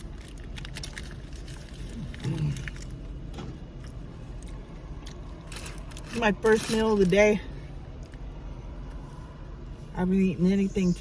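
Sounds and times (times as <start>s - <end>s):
chewing: 0.2s - 3.0s.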